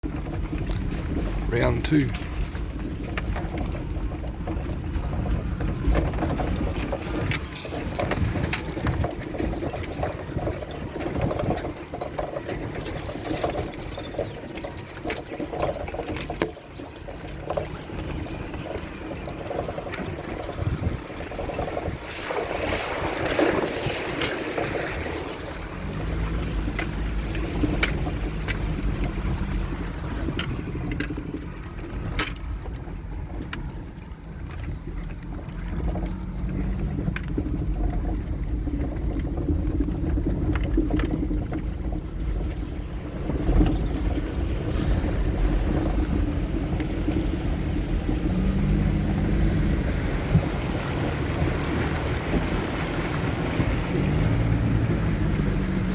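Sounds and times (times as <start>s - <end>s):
vehicle engine running under load: 0.0s - 55.9s
water washing around vehicle: 0.0s - 55.9s.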